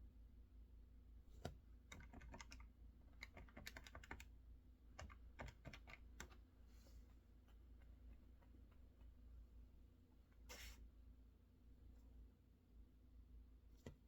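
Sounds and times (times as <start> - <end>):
mechanical keyboard typing: 1.9 - 2.6, 3.2 - 4.3, 5.0 - 6.4.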